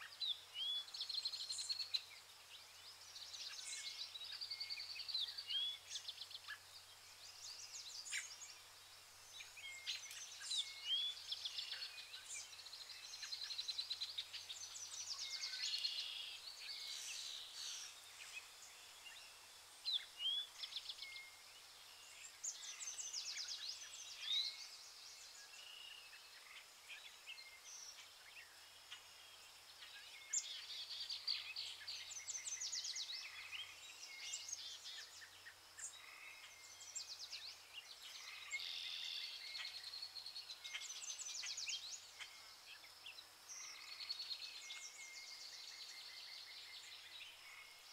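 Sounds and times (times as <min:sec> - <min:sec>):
faint steady hiss: 0:00.0 - 0:47.9.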